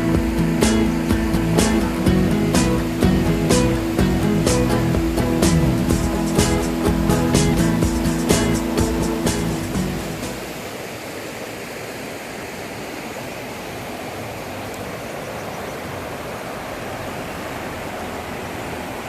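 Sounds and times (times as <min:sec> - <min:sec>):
music: 0:00.0 - 0:10.4
flowing water rushing: 0:00.0 - 0:19.0.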